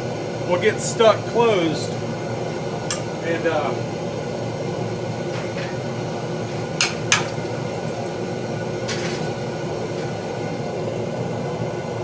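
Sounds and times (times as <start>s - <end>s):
steady background hum: 0.0s - 12.0s
steel tools clinking on metal: 2.9s - 3.2s, 6.8s - 7.5s, 8.9s - 9.4s.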